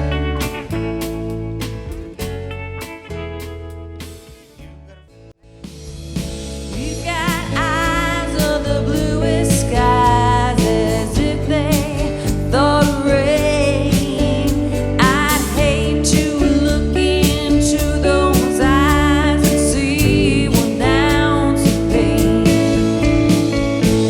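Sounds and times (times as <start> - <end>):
guitar bass and drums: 0.0 - 24.0
person singing: 6.8 - 23.5.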